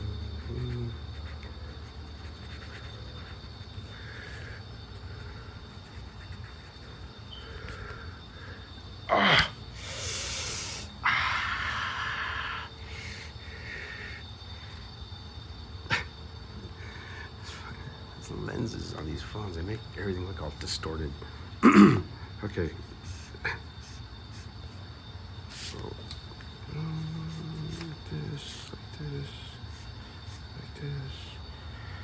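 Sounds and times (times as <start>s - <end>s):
pencil scratching on paper: 0.0s - 7.8s, 22.7s - 24.8s, 29.6s - 30.5s
steady low hum: 0.0s - 32.0s.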